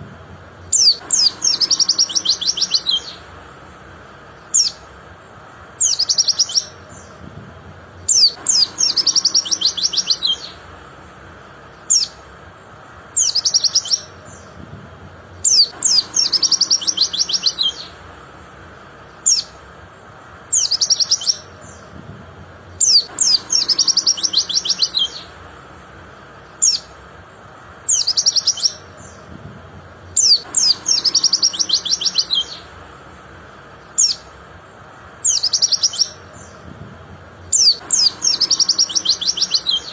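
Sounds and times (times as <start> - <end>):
bird singing and twittering: 0.6 - 10.8, 11.4 - 18.1, 19.0 - 25.5, 26.1 - 32.9, 33.6 - 39.9.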